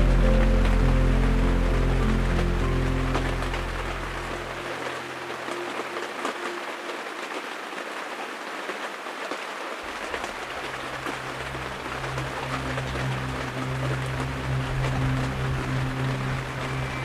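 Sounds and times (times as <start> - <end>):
low steady hum: 0.0 - 5.9, 9.9 - 17.0
rain falling: 0.0 - 17.0.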